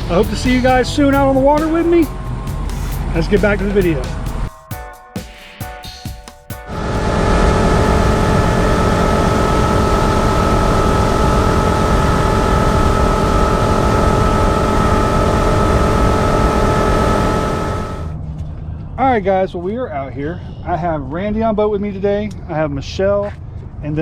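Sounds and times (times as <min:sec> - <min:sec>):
motorboat engine whine: 0:00.0 - 0:04.5, 0:06.7 - 0:18.2.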